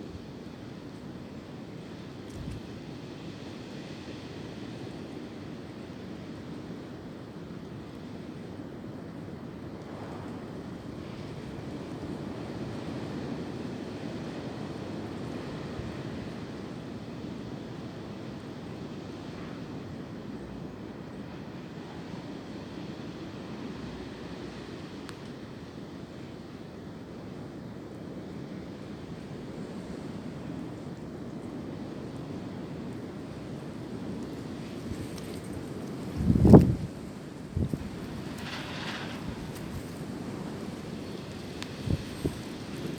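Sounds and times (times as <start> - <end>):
wind blowing through tree branches: 0.0 - 42.9
wind rumbling on microphone: 1.9 - 2.9, 28.9 - 42.9
wind blowing: 31.7 - 42.9.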